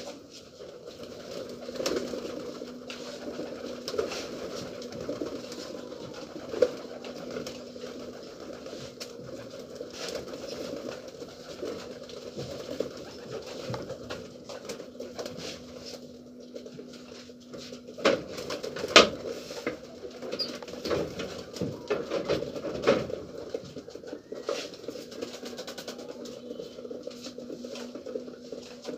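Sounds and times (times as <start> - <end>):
pigeons cooing: 0.0 - 28.9.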